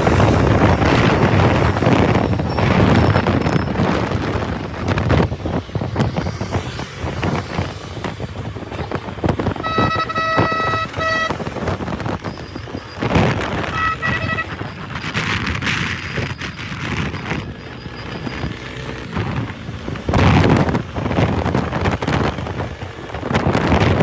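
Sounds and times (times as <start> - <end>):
road traffic: 0.0 - 24.0
wind buffeting microphone: 0.0 - 24.0
vehicle horn honking: 9.6 - 11.7, 13.6 - 14.9.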